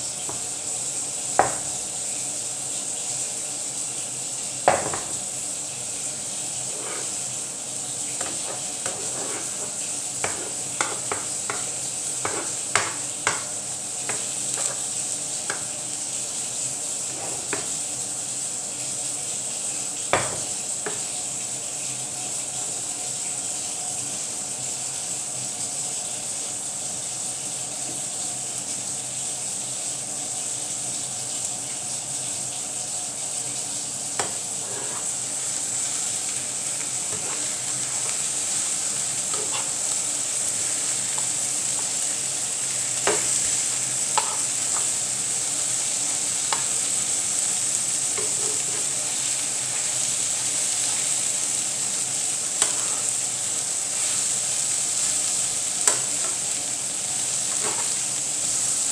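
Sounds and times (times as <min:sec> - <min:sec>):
omelette sizzling in a pan: 0:00.0 - 0:58.9.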